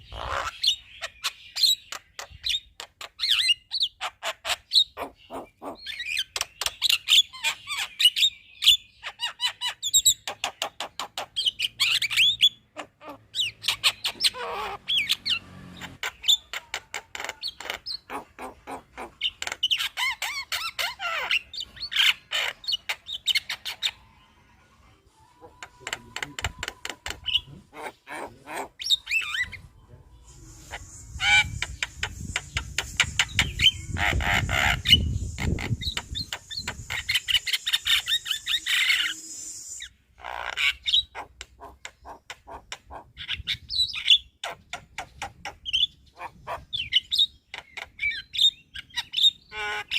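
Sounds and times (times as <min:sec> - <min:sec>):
myna chattering: 0:25.2 - 0:29.7
steady hiss: 0:30.1 - 0:39.9.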